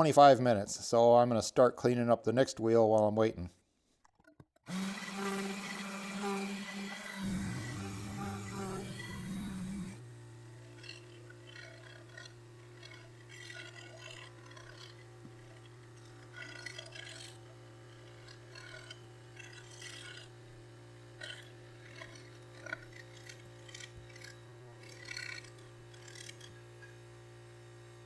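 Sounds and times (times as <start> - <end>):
scratching and scraping metal wheel: 7.2 - 27.0
steady low hum: 7.2 - 28.0.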